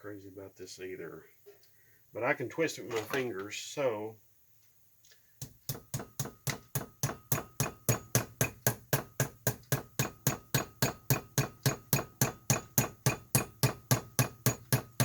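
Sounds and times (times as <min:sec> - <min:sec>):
hammer tapping on metal: 0:05.4 - 0:15.0.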